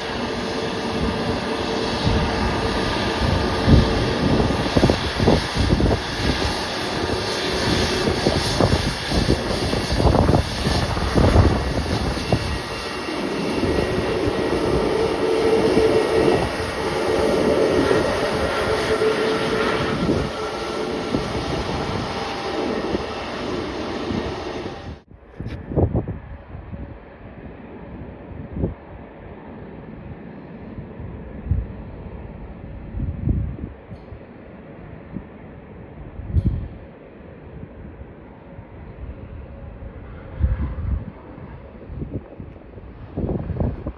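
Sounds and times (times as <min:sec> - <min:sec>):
jet engines roaring: 0:00.0 - 0:25.1
wind buffeting microphone: 0:00.0 - 0:43.9.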